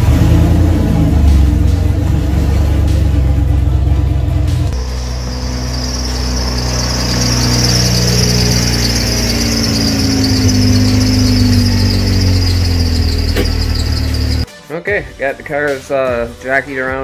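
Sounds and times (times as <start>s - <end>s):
car engine running at low speed: 0.0s - 14.4s
steady high-pitched squeal: 2.4s - 14.5s.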